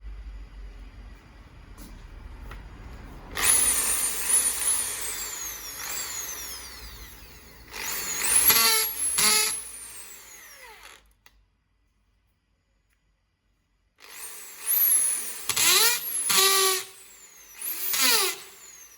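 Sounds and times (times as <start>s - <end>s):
hammer drill motor whine: 3.3s - 11.1s, 14.0s - 18.9s.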